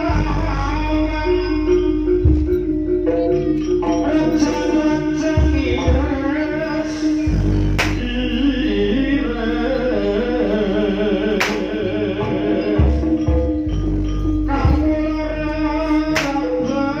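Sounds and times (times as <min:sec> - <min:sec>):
gamelan music: 0:00.0 - 0:17.0
wavering sung or piped melody: 0:00.0 - 0:17.0
sharp cracks: 0:07.8 - 0:08.3, 0:11.4 - 0:11.8.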